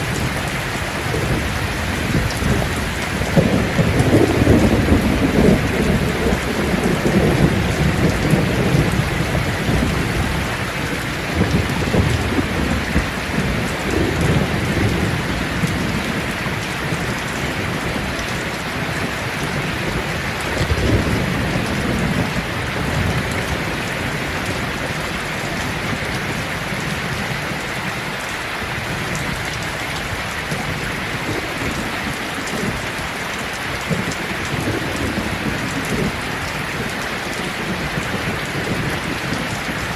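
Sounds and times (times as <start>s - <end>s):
rain falling on leaves: 0.0s - 39.9s
rolls of thunder: 1.0s - 10.2s.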